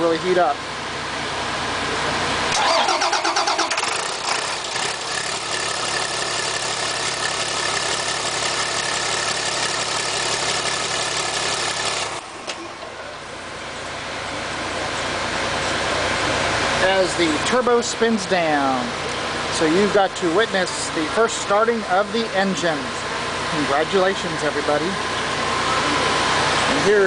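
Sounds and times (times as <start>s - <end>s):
bus engine running: 0.0s - 27.0s
bus engine starter cranking: 2.5s - 5.1s.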